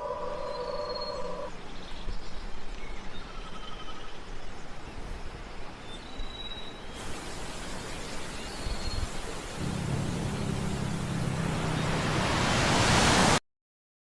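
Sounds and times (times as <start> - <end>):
waterfall rushing: 7.0 - 13.4
background music chord: 9.6 - 13.2.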